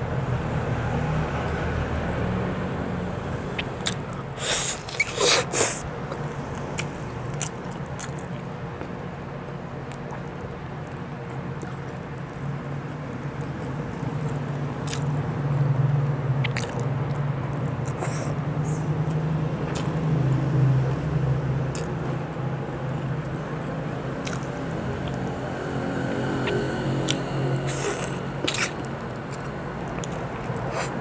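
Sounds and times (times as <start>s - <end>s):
steady low hum: 0.0s - 31.0s
person chewing and mouth smacking: 3.6s - 15.3s, 16.4s - 18.4s, 19.1s - 20.1s, 21.7s - 22.1s, 24.2s - 25.2s, 26.4s - 31.0s.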